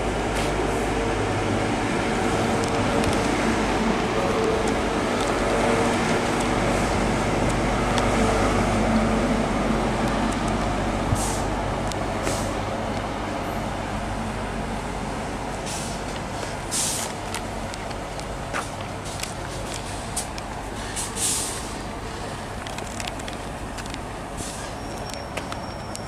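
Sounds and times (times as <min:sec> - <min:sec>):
train rumbling: 0:00.0 - 0:26.0.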